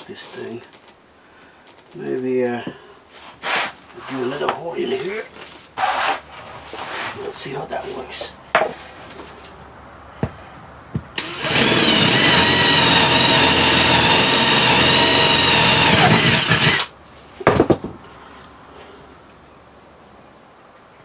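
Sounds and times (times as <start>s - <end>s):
sharp knocks: 10.2s - 12.8s
power drill whining: 11.2s - 16.9s.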